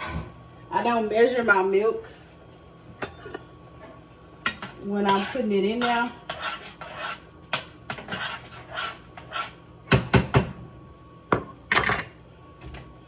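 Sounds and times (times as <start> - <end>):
dishes clinking and knocking: 3.0 - 3.5, 11.3 - 12.2
utensils stroking a bowl: 3.1 - 7.3, 7.9 - 9.6.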